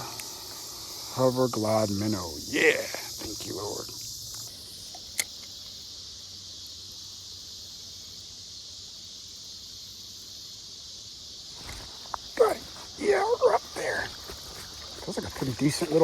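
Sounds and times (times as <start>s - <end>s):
insects buzzing: 0.0s - 16.0s
sharp click: 4.4s - 5.5s.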